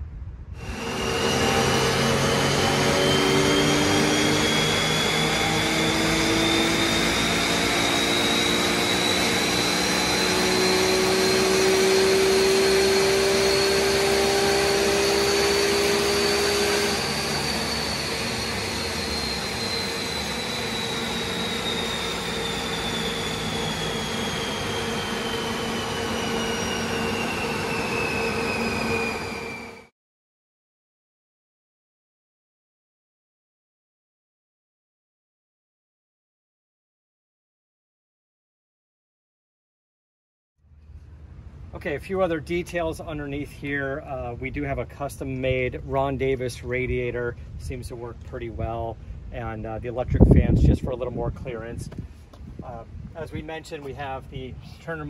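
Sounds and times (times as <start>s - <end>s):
supercharger whine: 0.2s - 29.9s, 40.7s - 55.0s
car engine at full throttle: 0.6s - 29.7s.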